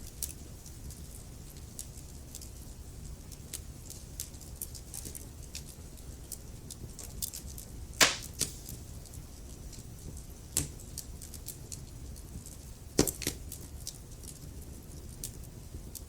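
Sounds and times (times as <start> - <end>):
wood fire crackling in fireplace: 0.0 - 16.0
loud wood pops: 8.0 - 8.7.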